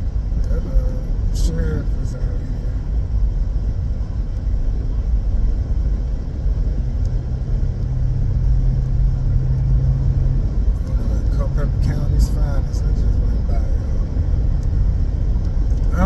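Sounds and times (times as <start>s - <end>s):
car engine and tyre road noise: 0.0s - 16.0s
steady low hum: 0.0s - 16.0s.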